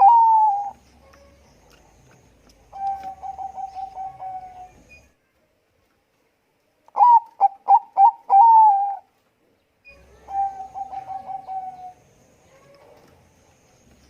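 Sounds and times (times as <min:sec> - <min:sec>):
dove cooing: 0:00.0 - 0:02.0, 0:02.6 - 0:04.9, 0:07.0 - 0:09.1, 0:09.9 - 0:13.1.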